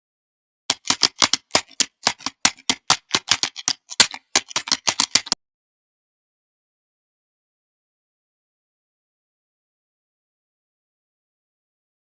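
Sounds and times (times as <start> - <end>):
rapid sharp clicks: 0.7 - 5.4.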